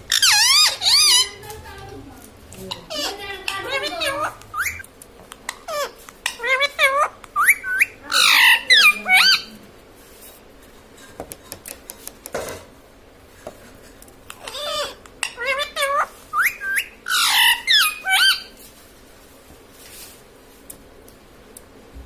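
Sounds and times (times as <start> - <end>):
parakeet harsh squawk: 0.0 - 1.4, 2.7 - 4.8, 5.5 - 9.5, 14.4 - 18.5
parakeet whistled chirps: 4.5 - 4.8, 7.4 - 9.4, 16.3 - 18.5.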